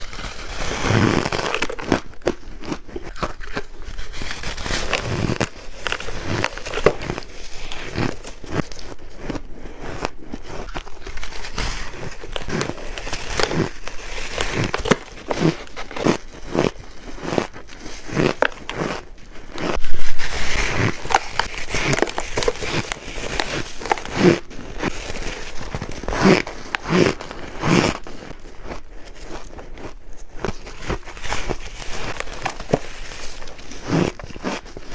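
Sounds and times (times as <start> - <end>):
biting crunchy ice: 0.0 - 34.9.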